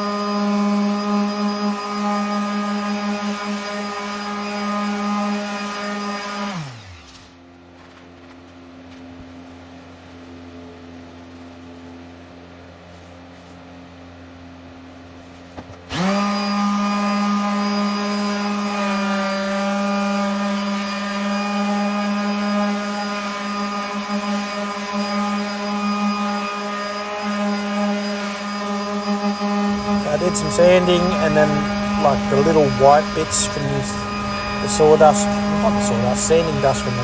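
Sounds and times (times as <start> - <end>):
electric sander running: 0.0 - 7.1, 15.9 - 37.0.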